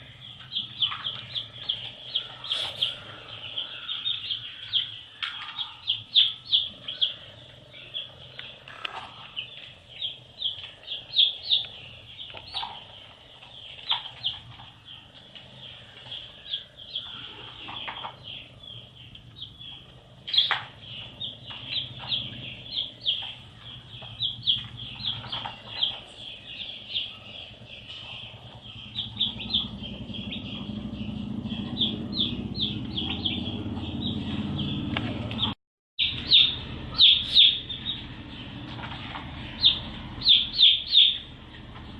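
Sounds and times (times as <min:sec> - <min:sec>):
baby chicks peeping: 0:00.0 - 0:41.9
low rumbling noise: 0:00.0 - 0:41.9.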